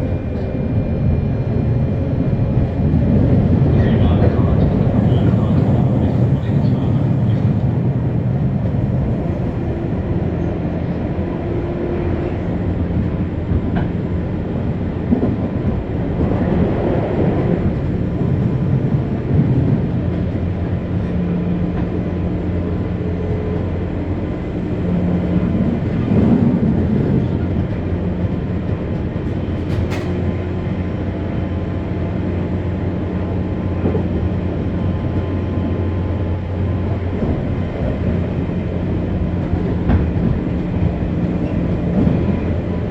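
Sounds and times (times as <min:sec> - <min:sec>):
train wheels rumbling on rail: 0:00.0 - 0:42.9
train motor hum: 0:02.6 - 0:10.5, 0:23.3 - 0:34.6.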